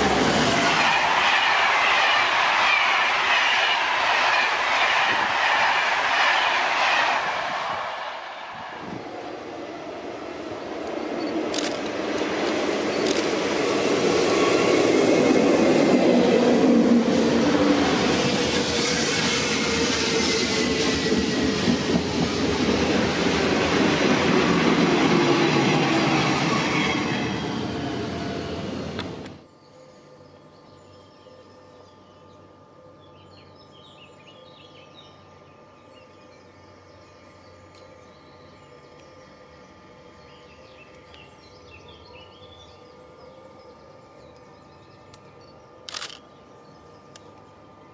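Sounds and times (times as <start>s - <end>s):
train passing: 0.0s - 29.4s
faint gliding whine: 29.4s - 47.9s.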